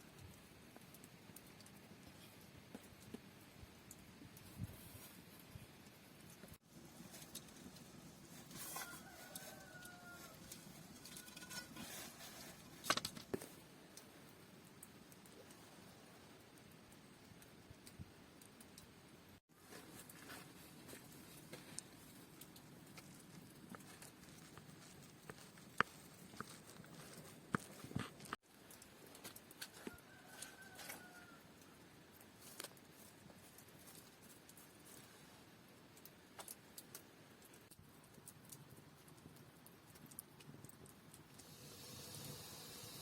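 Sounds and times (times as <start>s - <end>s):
rooster crowing faintly: 8.4s - 12.0s, 29.7s - 31.8s.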